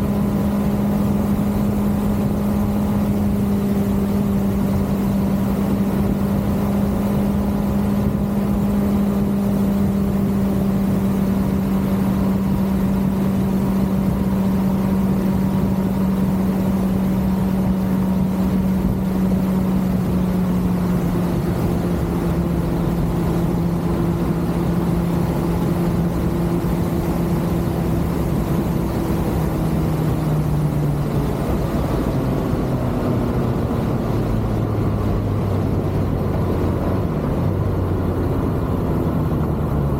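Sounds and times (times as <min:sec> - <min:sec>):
motorcycle engine cruising: 0:00.0 - 0:39.9
wind and road rush: 0:00.0 - 0:39.9.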